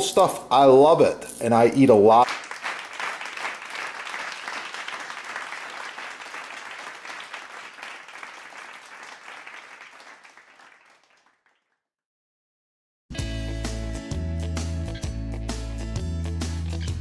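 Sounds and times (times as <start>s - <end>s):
dense clapping: 2.2s - 11.6s.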